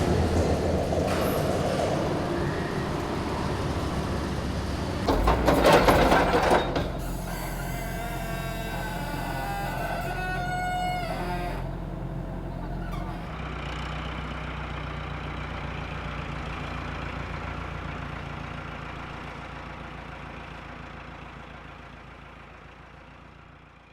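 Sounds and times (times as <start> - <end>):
heavy engine droning: 0.0 - 23.2
high-pitched squeal: 1.1 - 13.3.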